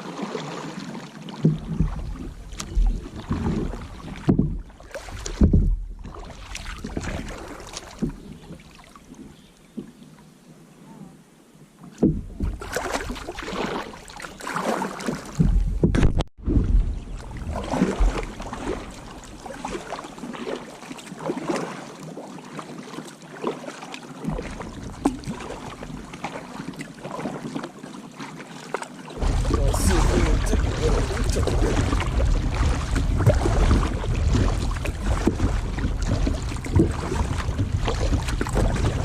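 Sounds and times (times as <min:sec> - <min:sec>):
paddle splashing in water: 0:00.0 - 0:10.3, 0:11.8 - 0:39.0
wind rumbling on microphone: 0:15.4 - 0:19.9, 0:29.2 - 0:39.0.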